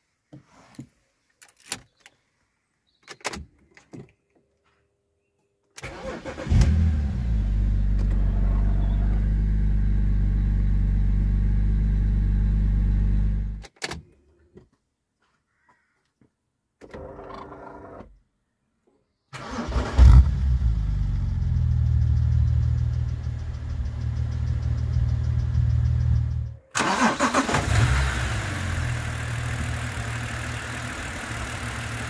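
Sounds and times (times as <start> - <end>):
car engine revving and idling: 6.4 - 13.6, 27.6 - 32.0.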